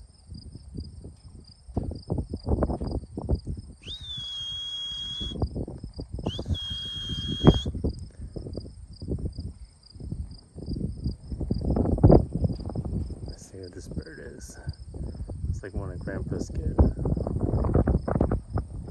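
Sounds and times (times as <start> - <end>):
crickets chirping: 0.0 - 18.9
high squeals: 3.8 - 5.4, 6.2 - 7.8.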